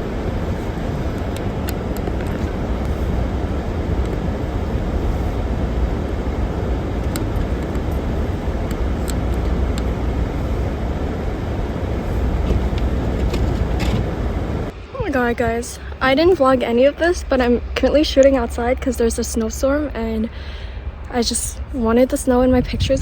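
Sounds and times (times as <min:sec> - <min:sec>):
strong wind buffeting microphone: 0:00.0 - 0:23.0.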